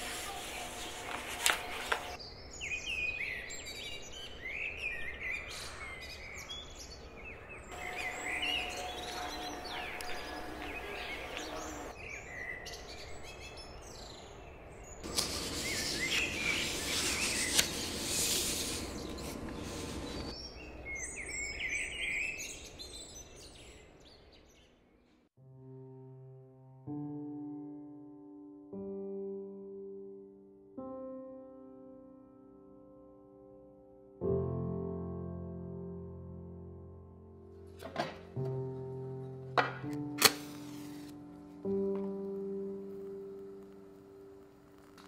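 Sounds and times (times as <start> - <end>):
small birds chirping: 2.1 - 25.2.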